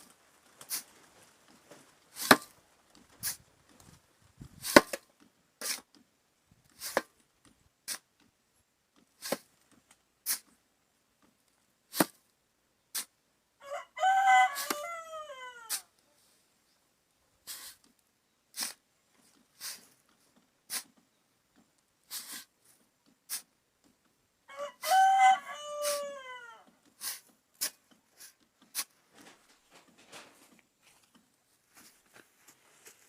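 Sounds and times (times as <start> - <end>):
short scraping or tapping strokes: 4.5 - 6.0, 6.7 - 7.2, 10.2 - 10.6, 17.4 - 17.9, 18.5 - 20.1, 22.0 - 23.6, 26.8 - 33.0
rooster crowing: 13.6 - 15.9, 24.5 - 26.7.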